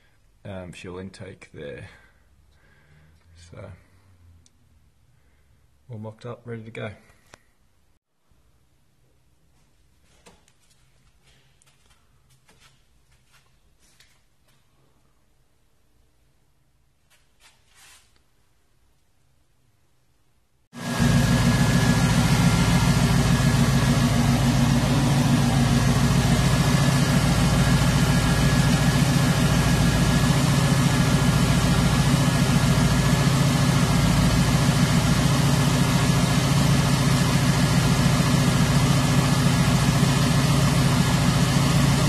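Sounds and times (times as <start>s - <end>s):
car engine idling: 20.8s - 42.0s.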